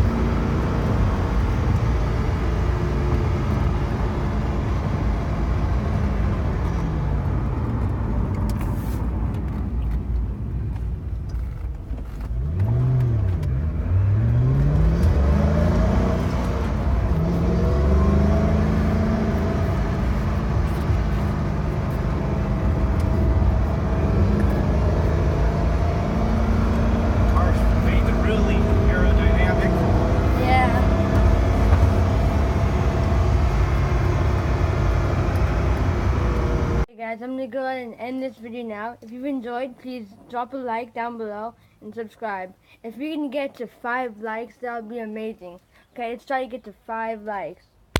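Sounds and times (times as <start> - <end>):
car engine accelerating: 0.0 - 36.9
gear changes: 0.0 - 36.9.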